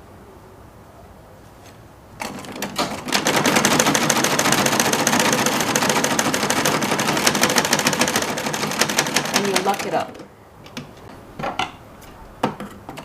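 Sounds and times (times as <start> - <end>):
sewing machine stitching: 2.2 - 10.8.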